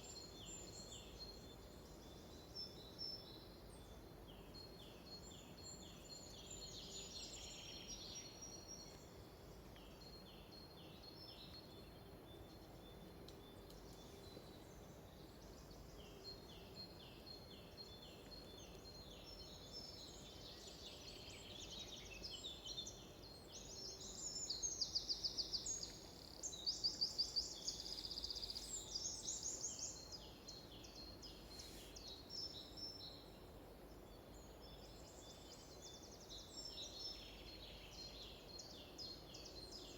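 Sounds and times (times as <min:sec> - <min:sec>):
wild birds chirping: 0:12.2 - 0:39.9.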